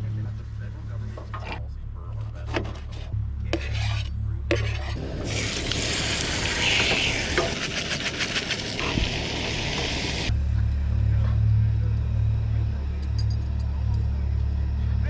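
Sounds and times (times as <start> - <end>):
stirring scrapes: 2.2 - 10.3
food sizzling in a frying pan: 5.2 - 10.3.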